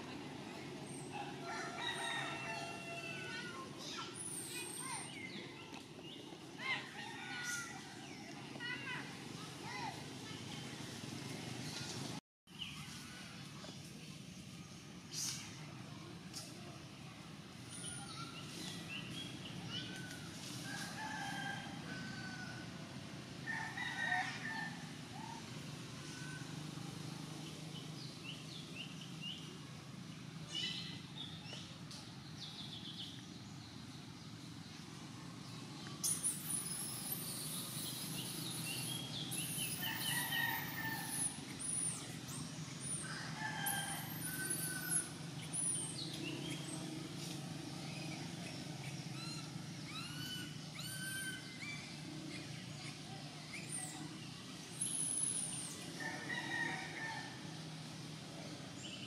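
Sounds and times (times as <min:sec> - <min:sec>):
birds chirping and whistling: 0:36.0 - 0:43.0, 0:47.9 - 0:52.1.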